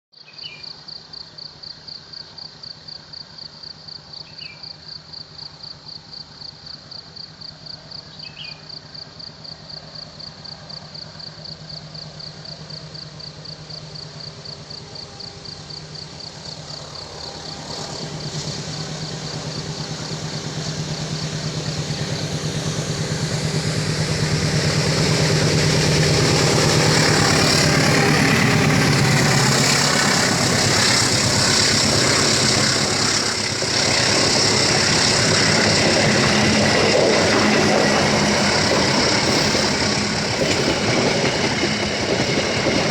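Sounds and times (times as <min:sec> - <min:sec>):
heavy diesel engine: 0:09.4 - 0:42.9.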